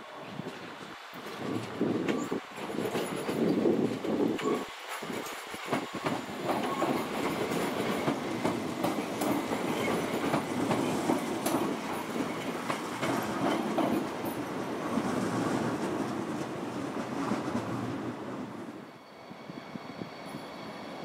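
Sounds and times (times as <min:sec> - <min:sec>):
train wheels rumbling on rails: 0:00.0 - 0:21.0
wheels clicking over rail joints: 0:01.4 - 0:16.5.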